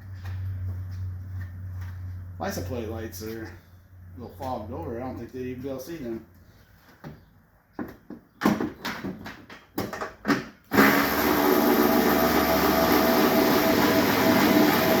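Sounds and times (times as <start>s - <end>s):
shop machine motor running: 10.7s - 15.0s.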